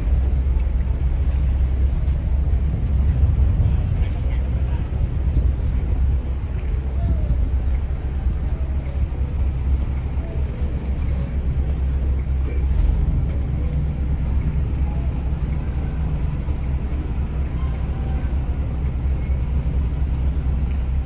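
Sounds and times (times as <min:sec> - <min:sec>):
boat engine rumble: 0:00.0 - 0:21.0
faint voices: 0:00.0 - 0:21.0.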